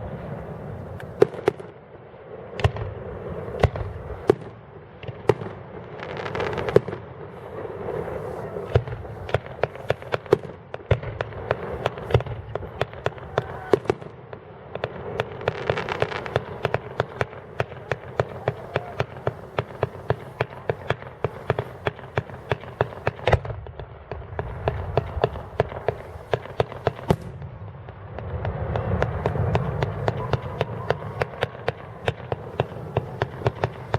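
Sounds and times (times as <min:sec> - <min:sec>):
fireworks cracks and bangs: 0:00.0 - 0:33.9
fireworks hissing rushes: 0:03.0 - 0:04.4, 0:06.0 - 0:10.6, 0:11.2 - 0:14.0, 0:15.0 - 0:23.5, 0:24.3 - 0:27.5, 0:28.2 - 0:33.9.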